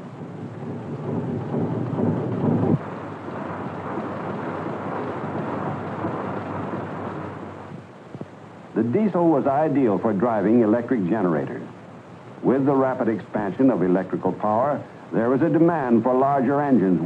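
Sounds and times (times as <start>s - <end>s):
diesel engine running: 0.0s - 8.8s.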